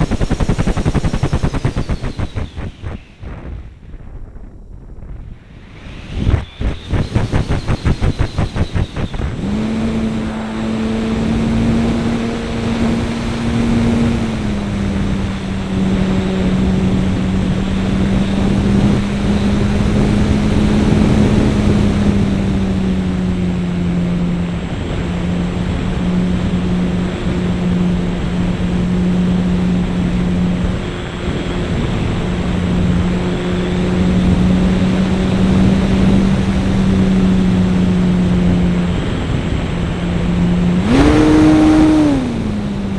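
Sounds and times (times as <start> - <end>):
model airplane engine running: 0.0 - 3.1, 6.2 - 42.9
wind rushing: 0.0 - 28.7.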